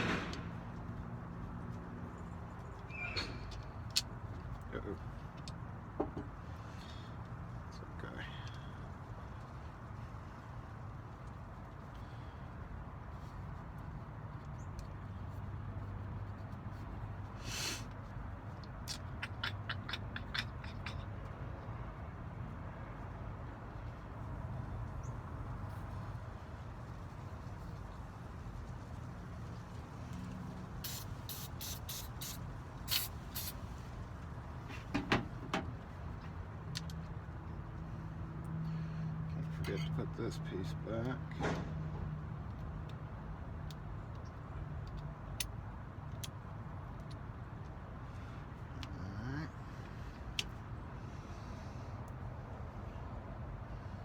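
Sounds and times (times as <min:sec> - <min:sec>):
light sharp clicks of lock parts: 0:03.2 - 0:06.4, 0:34.8 - 0:37.6, 0:41.0 - 0:47.8.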